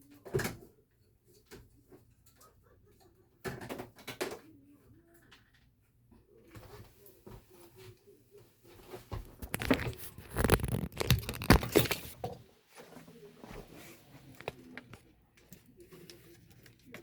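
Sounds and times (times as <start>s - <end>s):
knocks and scrapes of handling: 8.8s - 15.0s.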